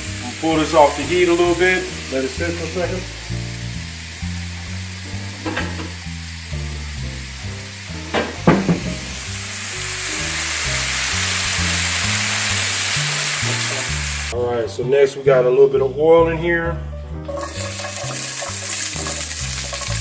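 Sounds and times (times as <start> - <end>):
food sizzling in a frying pan: 0.0 - 14.4, 17.3 - 20.0
short knocks: 8.1 - 9.1.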